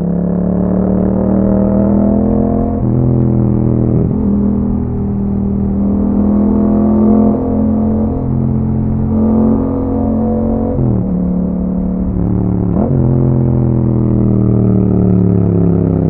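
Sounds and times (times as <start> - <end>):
motorcycle engine while riding: 0.0 - 16.0.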